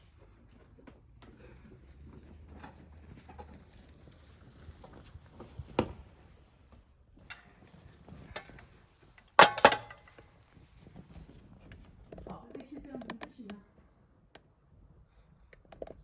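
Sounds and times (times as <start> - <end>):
objects knocking and clicking: 9.4 - 10.2.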